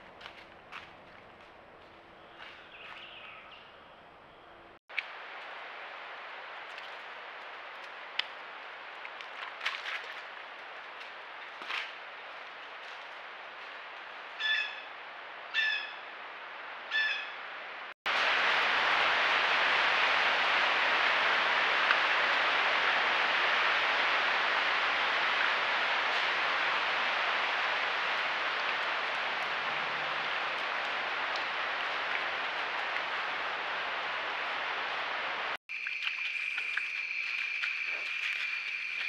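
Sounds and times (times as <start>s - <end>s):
bird calling: 14.4s - 14.9s, 16.9s - 17.4s
steady rushing noise: 18.1s - 35.6s.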